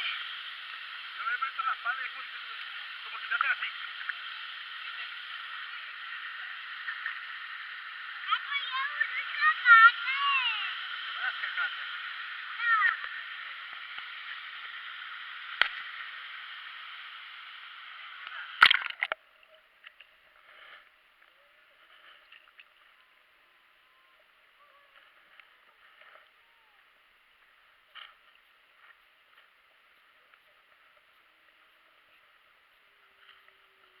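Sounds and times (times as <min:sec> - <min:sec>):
loud splash: 0:18.6 - 0:19.2
water sloshes and drips: 0:18.6 - 0:20.1.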